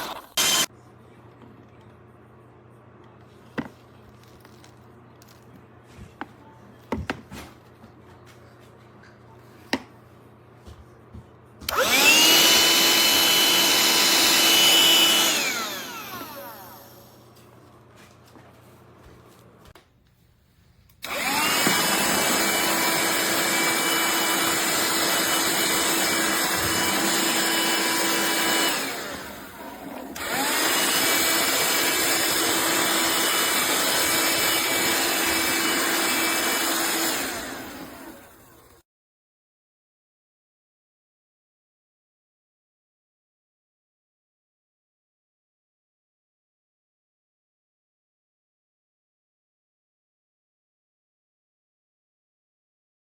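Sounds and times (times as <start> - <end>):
handheld vacuum motor whining: 0.0 - 0.7, 11.7 - 17.2, 21.0 - 38.8.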